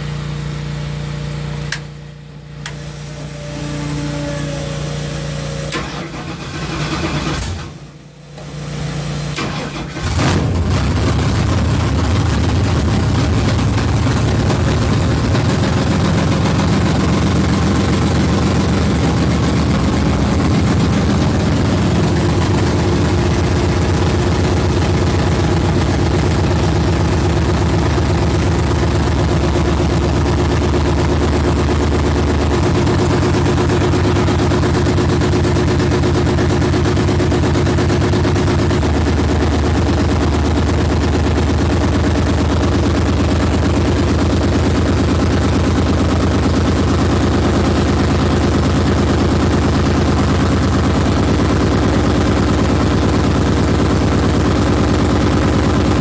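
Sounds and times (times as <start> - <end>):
engine running: 0.0 - 56.0
starter motor cranking: 5.7 - 7.8.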